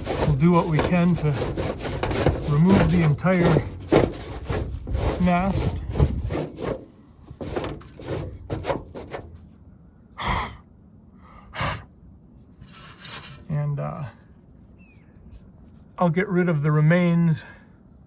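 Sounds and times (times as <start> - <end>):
papery wasp nest scraping: 0.0 - 9.5, 12.6 - 13.8
short sharp breaths: 10.1 - 10.6, 11.2 - 11.9.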